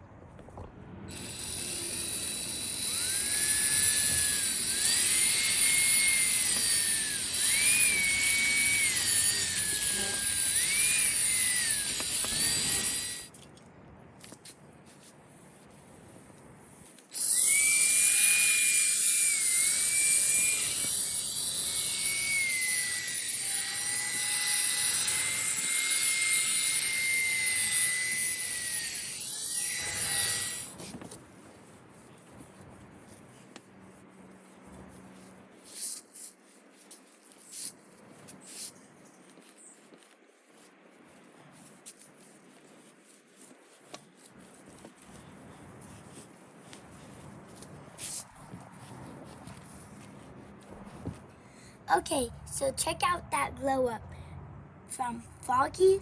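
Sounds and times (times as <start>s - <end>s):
polishing tool motor whine: 1.1s - 13.3s, 17.1s - 31.0s, 43.0s - 48.2s.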